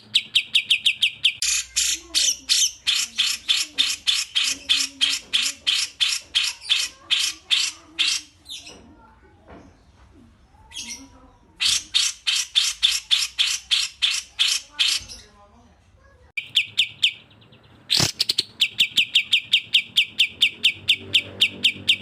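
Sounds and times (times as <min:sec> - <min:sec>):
bird calling harsh scratchy notes: 0:16.4 - 0:22.0.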